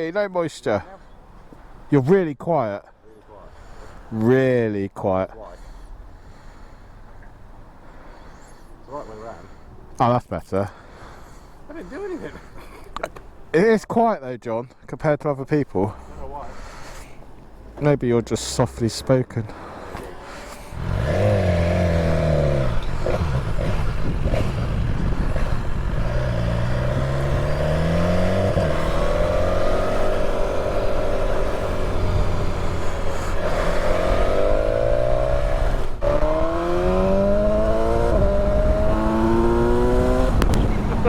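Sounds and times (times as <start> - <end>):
motorcycle engine accelerating: 19.6 - 41.0.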